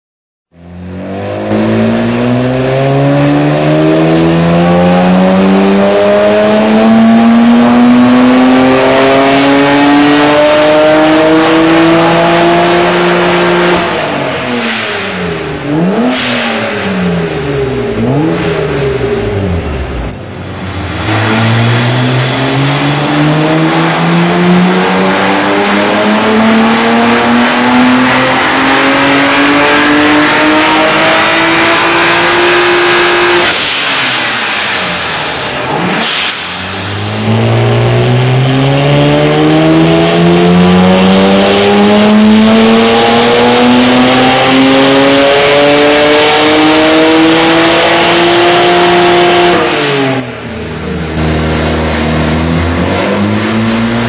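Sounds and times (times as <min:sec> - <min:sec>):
car engine revving at full throttle: 0:00.5 - 0:54.0
rush of air from throttle: 0:18.4 - 0:24.7, 0:33.4 - 0:37.5.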